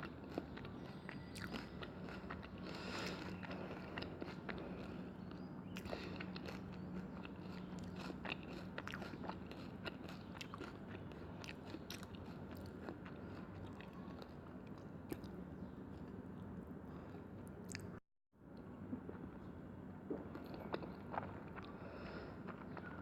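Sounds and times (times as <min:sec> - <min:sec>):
person chewing: 0:00.0 - 0:16.2, 0:16.9 - 0:18.0, 0:20.1 - 0:23.0
steady low hum: 0:00.0 - 0:23.0.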